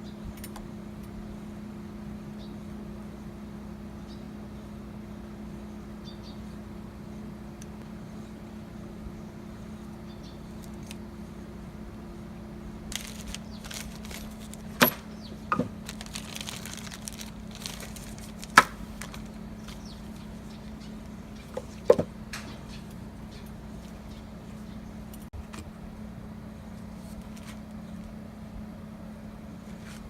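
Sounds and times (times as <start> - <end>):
low hum: 0.0 - 30.0
light rustling: 12.9 - 22.9.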